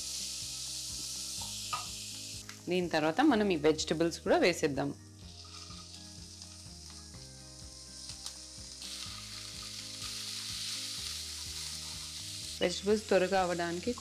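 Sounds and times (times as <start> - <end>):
vegetables sizzling in hot oil: 0.0 - 4.4, 5.2 - 14.0
spatula stirring in a pan: 9.0 - 12.3.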